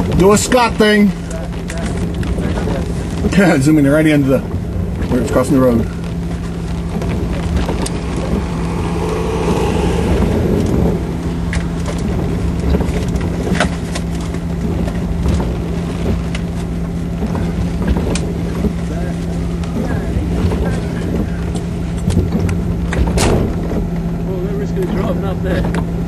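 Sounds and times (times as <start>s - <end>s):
storm wind buffeting microphone: 6.5s - 13.3s
constant low hum: 6.7s - 12.6s.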